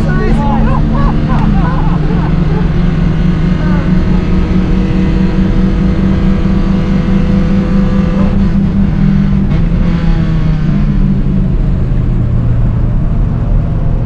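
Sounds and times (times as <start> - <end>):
car engines at high revs: 0.0 - 14.0.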